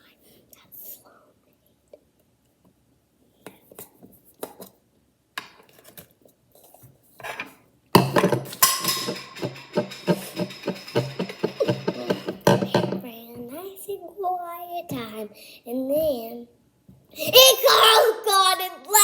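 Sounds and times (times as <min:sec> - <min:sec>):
handling sounds: 0:07.2 - 0:13.0
metal lid clattering and scraping: 0:07.2 - 0:13.0.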